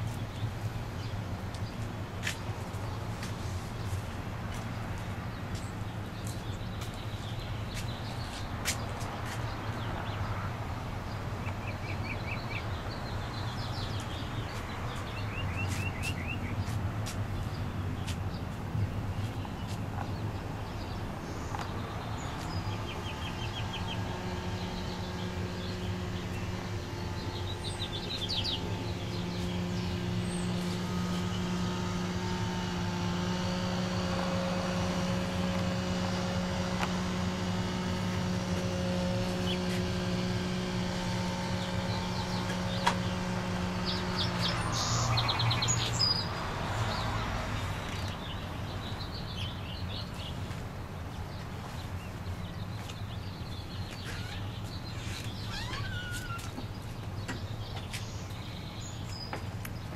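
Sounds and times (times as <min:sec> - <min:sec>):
small birds chirping: 0:00.0 - 0:59.9
motor hum: 0:19.3 - 0:48.2.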